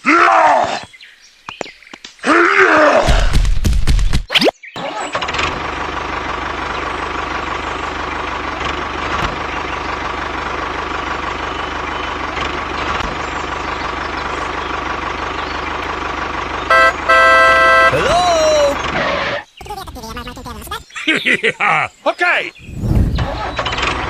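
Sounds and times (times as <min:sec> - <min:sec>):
vehicle engine running: 0:05.1 - 0:20.1, 0:22.7 - 0:24.0
horn toots: 0:16.6 - 0:19.1.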